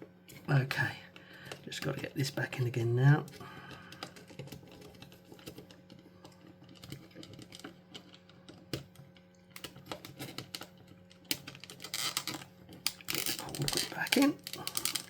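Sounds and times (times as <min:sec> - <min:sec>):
small plastic parts clicking: 0:03.1 - 0:15.0.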